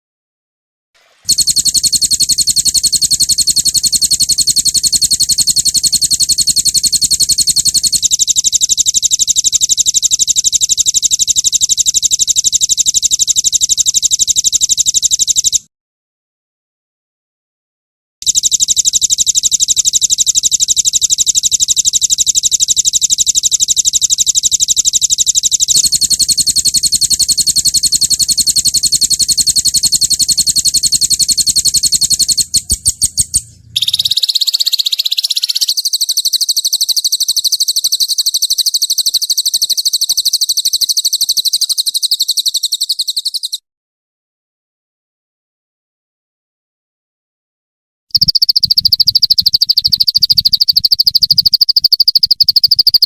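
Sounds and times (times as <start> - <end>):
songbird fast trilling rolls: 25.8 - 43.5.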